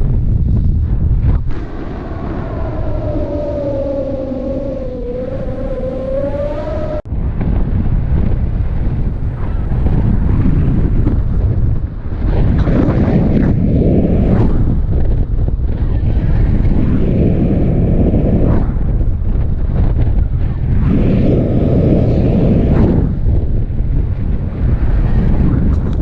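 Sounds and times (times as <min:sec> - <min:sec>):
wind rushing over microphone: 0:00.0 - 0:26.0
steady whistling tone: 0:01.3 - 0:07.1.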